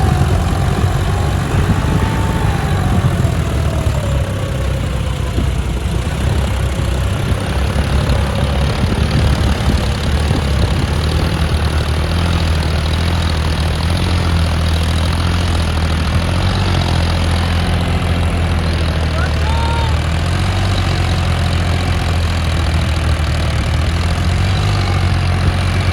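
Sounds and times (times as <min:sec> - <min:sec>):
tractor diesel engine drone: 0:00.0 - 0:25.9.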